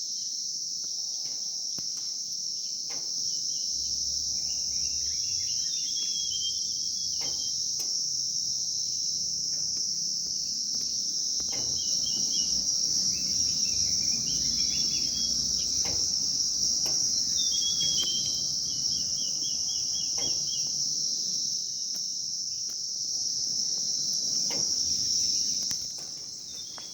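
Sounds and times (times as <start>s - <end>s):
insect drone: 0.0s - 26.9s
birds chirping: 2.6s - 7.8s, 11.4s - 21.4s, 24.4s - 26.9s.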